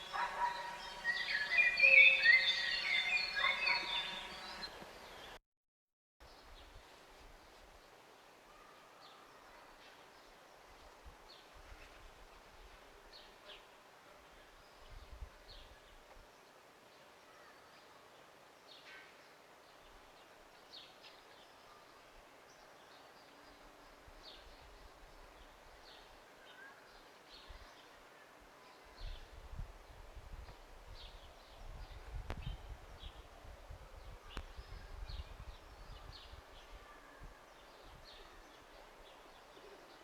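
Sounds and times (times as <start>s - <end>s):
small birds chirping: 0.0s - 5.4s.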